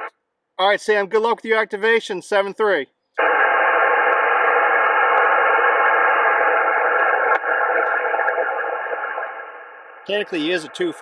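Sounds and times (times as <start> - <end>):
radio static hiss: 3.2 - 11.0.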